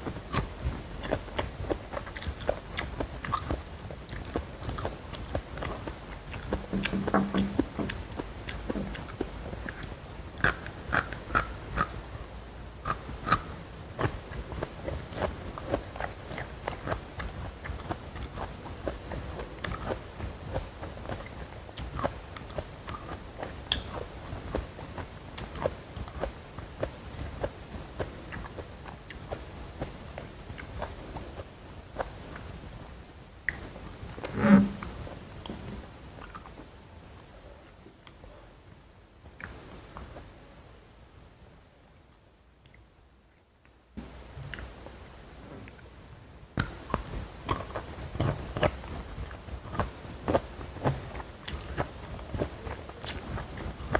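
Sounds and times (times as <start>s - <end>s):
crunchy bites and chewing: 0.0s - 12.0s, 12.8s - 29.4s, 46.6s - 53.9s
wet mouth clicks: 0.3s - 12.0s, 12.8s - 20.6s, 46.6s - 50.8s.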